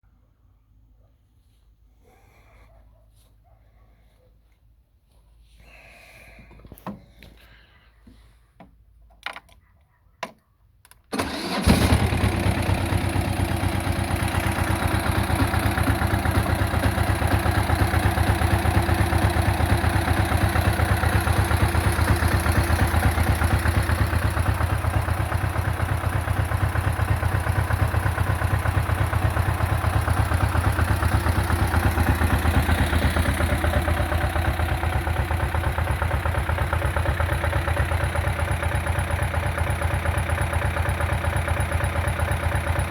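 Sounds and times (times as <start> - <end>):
tractor engine starting and idling: 11.0 - 42.9.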